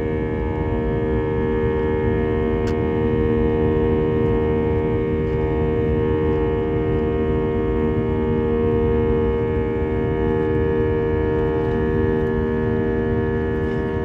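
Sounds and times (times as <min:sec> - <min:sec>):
jet airliner cabin drone: 0:00.0 - 0:14.0.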